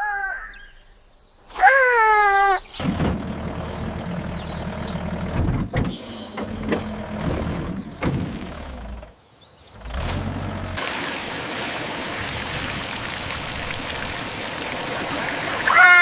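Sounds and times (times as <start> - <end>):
tractor engine humming: 2.6 - 9.1, 9.8 - 16.0.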